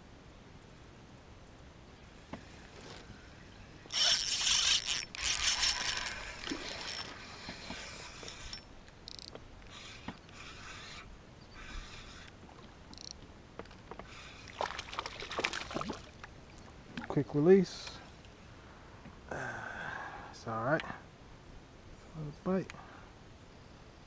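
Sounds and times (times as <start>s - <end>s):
fishing reel ratchet whirring: 3.9s - 13.2s.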